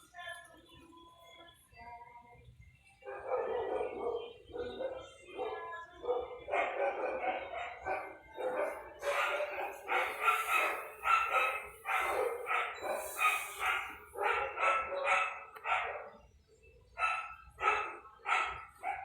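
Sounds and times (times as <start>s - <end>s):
dog barking: 3.0s - 16.2s, 17.0s - 19.0s.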